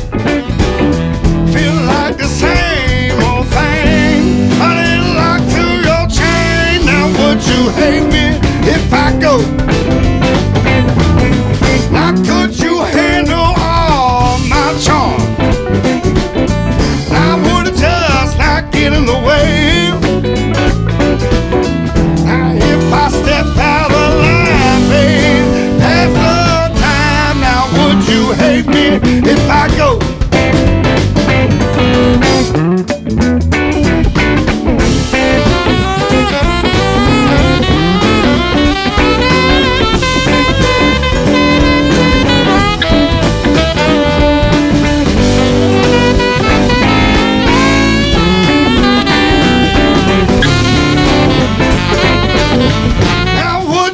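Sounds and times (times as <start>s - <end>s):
drum kit: 0.0s - 53.9s
guitar: 0.0s - 53.9s
live band playing blues: 0.0s - 53.9s.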